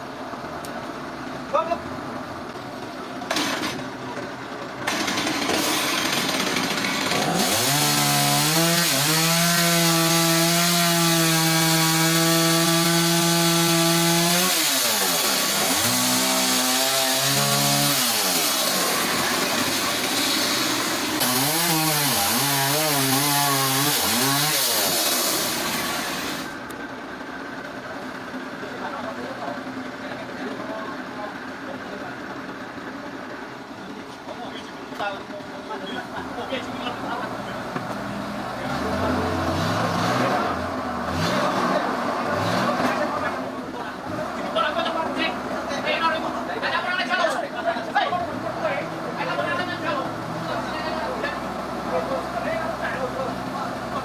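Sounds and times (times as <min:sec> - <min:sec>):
chainsaw cutting log: 0:03.3 - 0:03.8, 0:04.8 - 0:26.6.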